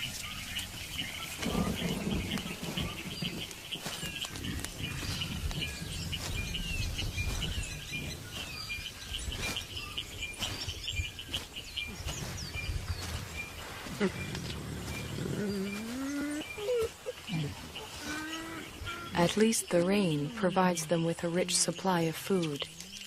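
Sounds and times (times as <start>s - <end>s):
forest birds chirping: 0.0s - 23.0s.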